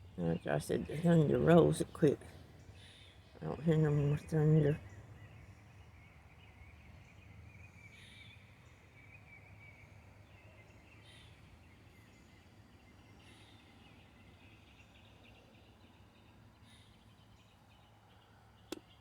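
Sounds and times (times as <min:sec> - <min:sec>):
low steady hum: 0:00.0 - 0:13.6.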